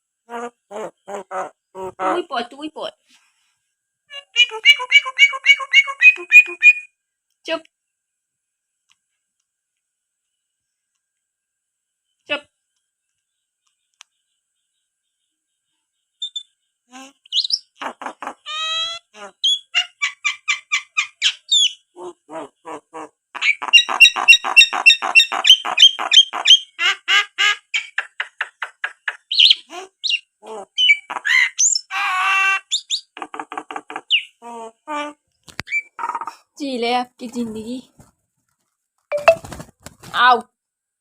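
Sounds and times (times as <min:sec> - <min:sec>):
myna chattering: 0:00.3 - 0:02.8, 0:35.9 - 0:38.0
bird harsh squawk: 0:17.2 - 0:21.8, 0:23.4 - 0:26.8, 0:27.8 - 0:34.4.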